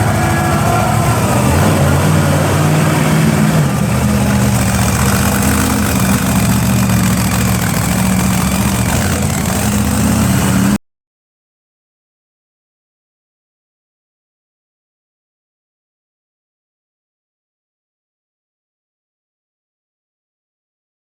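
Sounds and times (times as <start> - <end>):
truck engine idling: 0.0 - 10.8.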